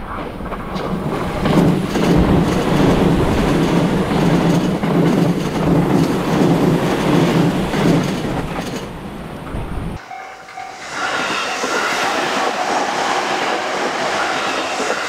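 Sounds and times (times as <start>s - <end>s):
wheels clacking over rail joints: 0.0s - 10.0s
electric train passing: 0.0s - 15.0s.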